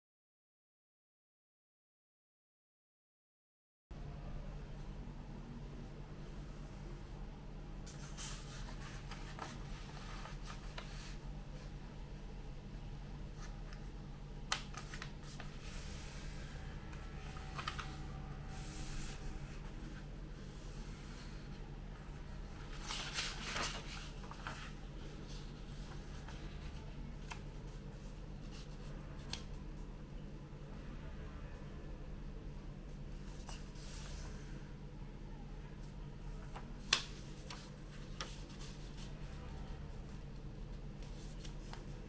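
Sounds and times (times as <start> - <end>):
steady low hum: 3.9 - 42.0
paper rustling and crinkling: 7.9 - 11.7, 13.4 - 29.5, 36.3 - 40.2.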